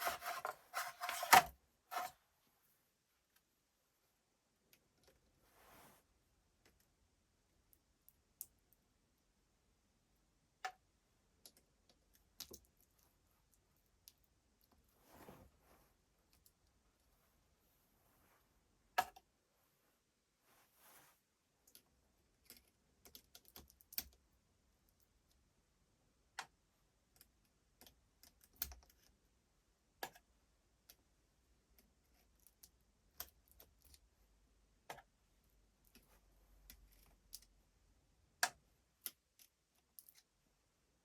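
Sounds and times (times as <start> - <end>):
light clicks of small parts and tools: 21.6 - 24.2, 26.4 - 29.2, 38.4 - 40.3.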